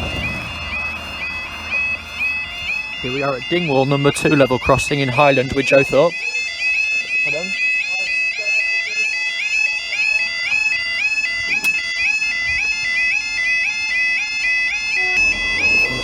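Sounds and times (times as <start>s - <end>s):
low rumble: 0.0s - 3.4s
bagpipe music: 0.0s - 16.0s.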